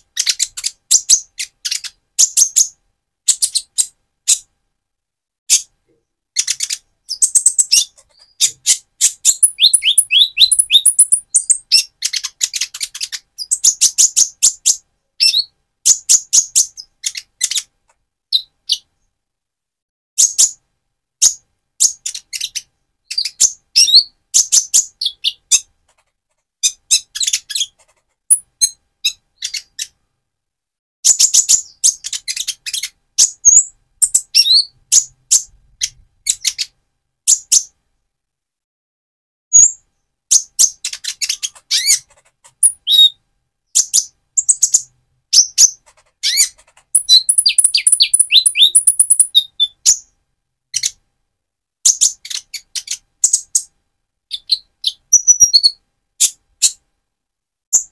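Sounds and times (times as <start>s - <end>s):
sunbird singing: 6.4s - 11.9s, 42.6s - 43.2s, 45.4s - 50.1s.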